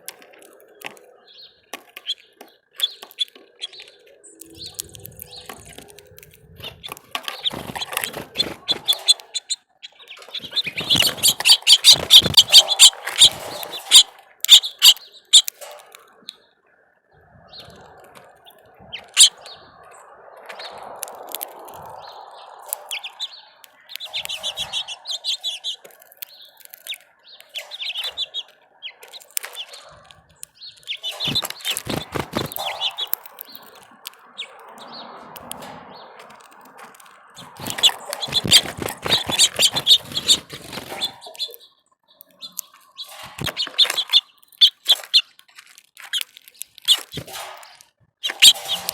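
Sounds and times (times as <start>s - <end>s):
songbirds chirping: 0.0s - 48.9s
sharp taps and clicks: 22.7s - 41.6s, 42.2s - 48.9s.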